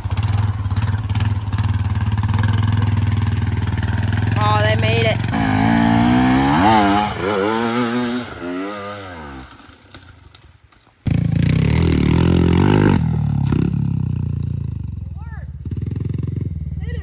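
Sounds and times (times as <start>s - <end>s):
off-road vehicle engine revving: 0.2s - 9.6s, 11.1s - 17.0s
engine running steadily close: 11.1s - 17.0s.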